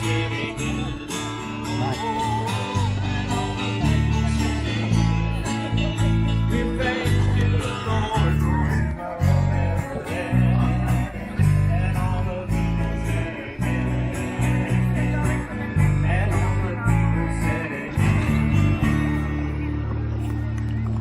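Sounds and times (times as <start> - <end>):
bass line: 0.0 - 21.0
guitar music: 0.0 - 21.0.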